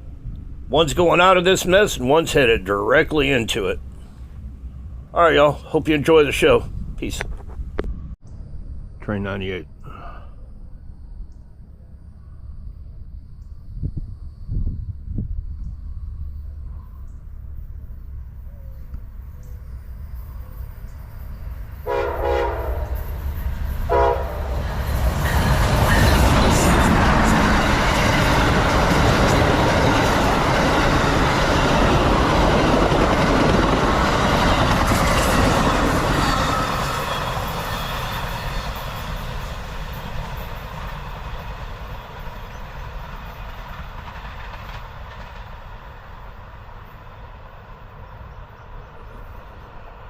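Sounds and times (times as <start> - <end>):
passenger train passing: 0.0 - 50.0.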